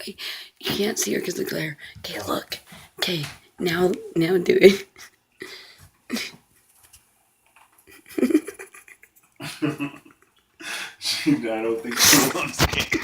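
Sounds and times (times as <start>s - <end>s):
breaths: 0.2s - 0.6s, 5.4s - 6.0s, 10.6s - 11.4s
soft laughter and giggling: 7.9s - 10.4s.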